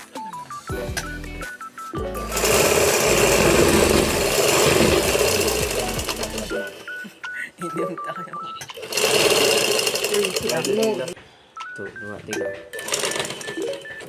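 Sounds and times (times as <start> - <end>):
sewing machine running: 2.1 - 7.0, 8.6 - 11.2, 12.8 - 14.0.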